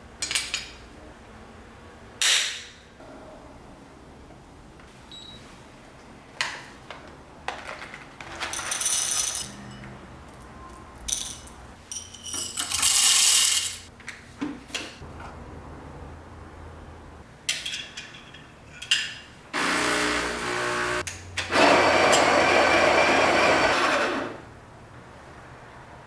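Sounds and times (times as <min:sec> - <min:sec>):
small hard objects clinking: 0:10.4 - 0:13.9.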